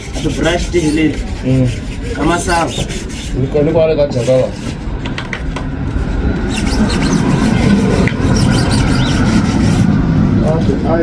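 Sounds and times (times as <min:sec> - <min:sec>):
brush scrubbing car body: 0:00.0 - 0:03.5, 0:04.2 - 0:04.8, 0:06.5 - 0:10.0.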